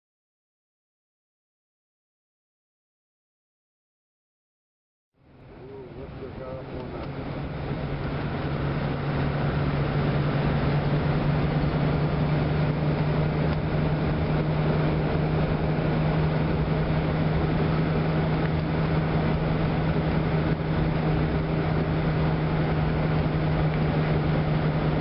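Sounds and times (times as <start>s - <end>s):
car engine droning: 5.2s - 25.0s
road and wind noise: 5.2s - 25.0s.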